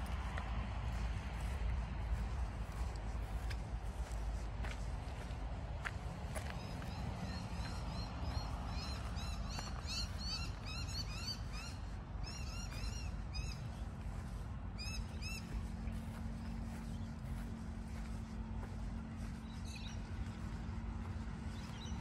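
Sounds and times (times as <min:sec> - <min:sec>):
steady low rumble: 0:00.0 - 0:22.0
birds chirping: 0:06.2 - 0:22.0.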